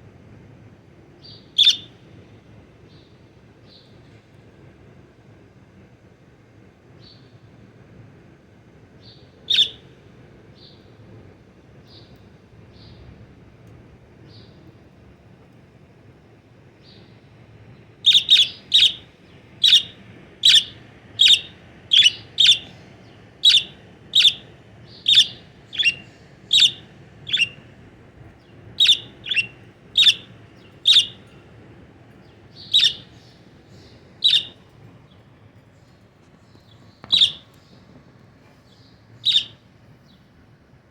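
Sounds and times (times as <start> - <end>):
bird sharp short calls: 25.1 - 27.6, 32.6 - 33.2, 34.2 - 34.6, 37.1 - 37.4, 39.2 - 39.6.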